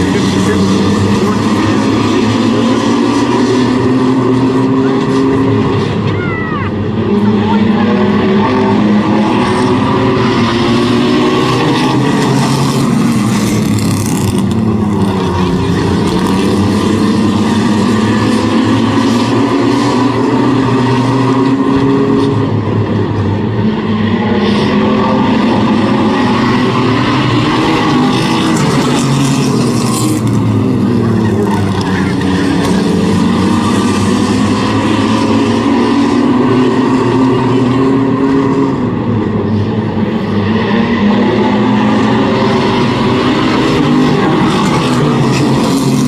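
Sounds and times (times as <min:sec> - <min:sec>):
race truck engines: 0:00.0 - 0:46.0.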